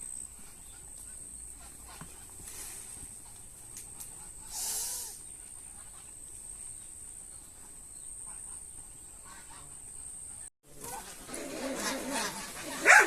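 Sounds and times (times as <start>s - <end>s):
short hissing rush: 4.4s - 5.2s.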